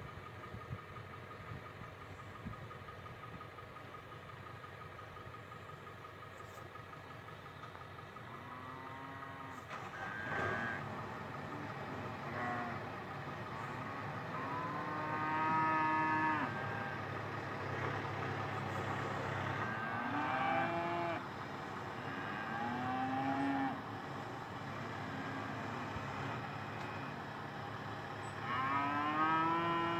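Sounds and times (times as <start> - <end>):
tractor diesel engine running: 0.0 - 29.9
cattle mooing: 8.2 - 21.2, 22.0 - 23.9, 28.3 - 29.9.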